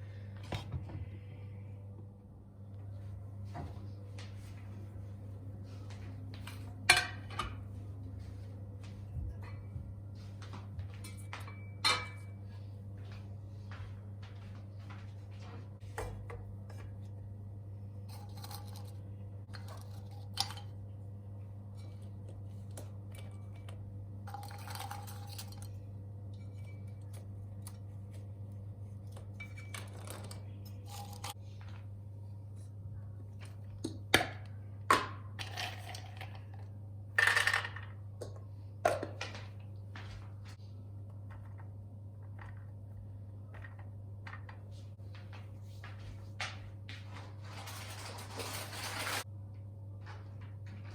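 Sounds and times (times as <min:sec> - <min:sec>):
steady low hum: 0:00.0 - 0:50.9
objects clicking and clinking: 0:21.8 - 0:25.8.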